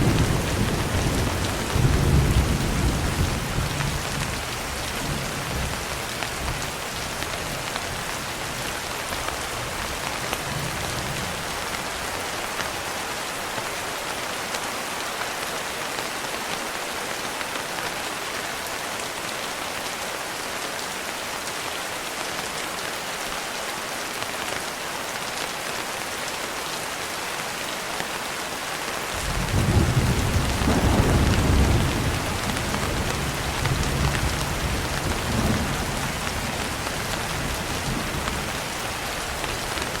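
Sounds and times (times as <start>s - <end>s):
heavy rain on a window: 0.0s - 40.0s
thunder rumbling: 29.2s - 38.6s.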